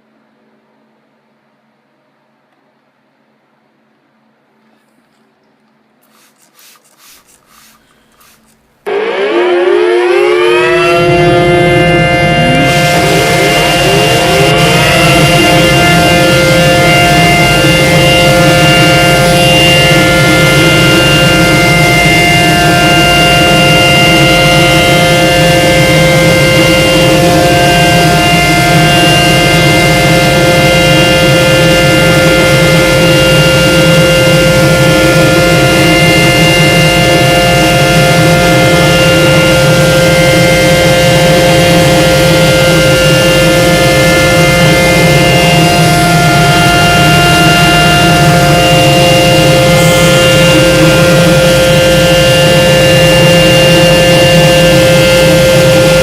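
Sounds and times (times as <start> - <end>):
car wash machinery roaring: 6.0 - 56.0
steady whining tones: 6.4 - 56.0.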